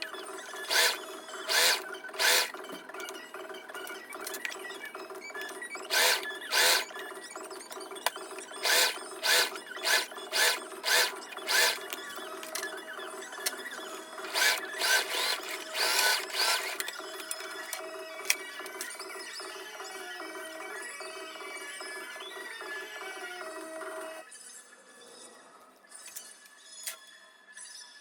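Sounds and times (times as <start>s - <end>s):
sewing machine stitching: 0.6s - 2.6s, 5.9s - 7.0s, 8.4s - 12.5s, 14.2s - 16.8s.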